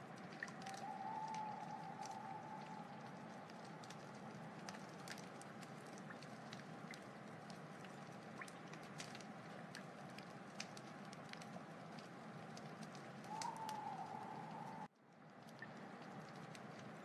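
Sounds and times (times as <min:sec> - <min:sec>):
fire crackling and popping: 0:00.0 - 0:17.0
thin whistling tone: 0:00.6 - 0:03.0, 0:13.3 - 0:14.9
wood fire hissing: 0:09.1 - 0:14.9.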